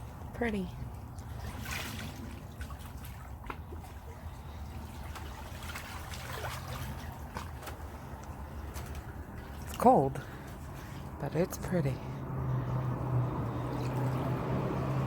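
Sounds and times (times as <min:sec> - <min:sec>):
water lapping against dock: 0:00.0 - 0:15.0
small splashes: 0:00.8 - 0:11.2, 0:12.0 - 0:15.0
steady low rumble: 0:07.0 - 0:15.0.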